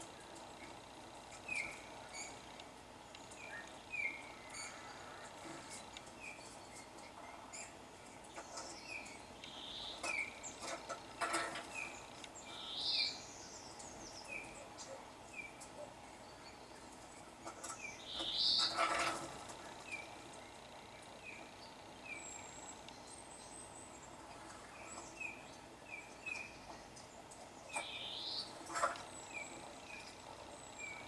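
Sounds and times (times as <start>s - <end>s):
warbling bird calls: 17.6s - 20.2s.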